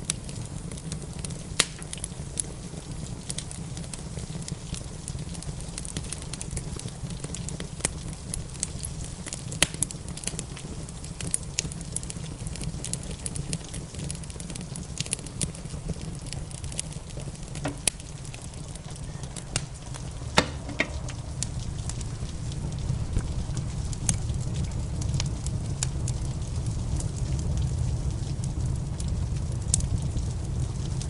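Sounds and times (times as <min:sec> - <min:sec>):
loud fire pops: 0:00.0 - 0:31.0
wood fire crackling: 0:00.0 - 0:31.0
low rumble: 0:16.6 - 0:31.0.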